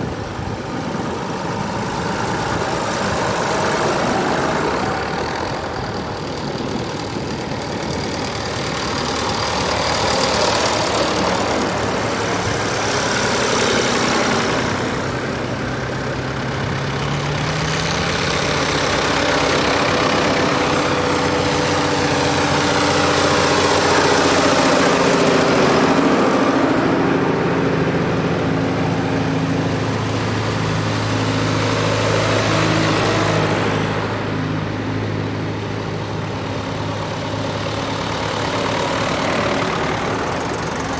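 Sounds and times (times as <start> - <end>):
tractor engines driving past: 0.0 - 40.9.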